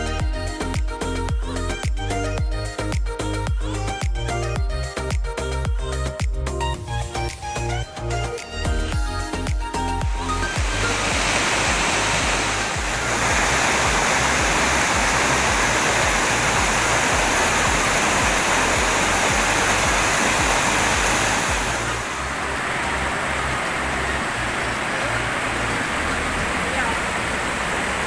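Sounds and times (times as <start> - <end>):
music track: 0.0 - 26.8
waterfall rushing: 10.0 - 28.0.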